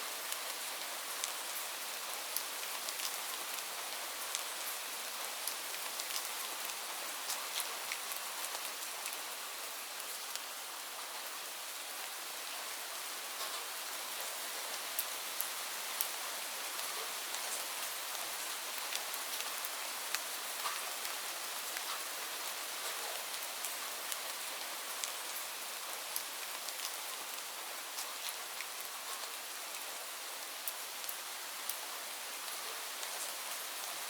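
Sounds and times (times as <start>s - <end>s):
rain hiss: 0.0s - 34.0s
raindrops pattering: 0.2s - 9.2s, 14.2s - 29.9s.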